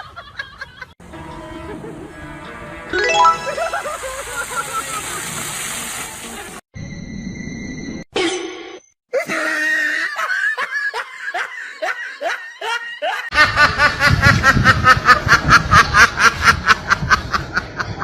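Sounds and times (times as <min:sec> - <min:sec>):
person laughing: 0:03.4 - 0:05.4, 0:09.1 - 0:18.0.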